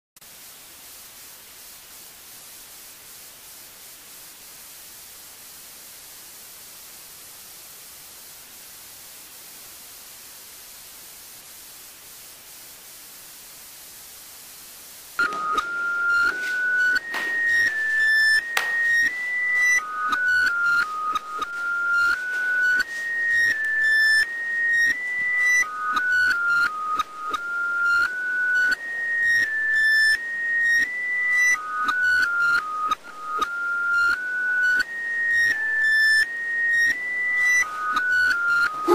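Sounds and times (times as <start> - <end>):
steady hiss: 0.2 - 38.9
electronic tone tune: 15.2 - 38.9.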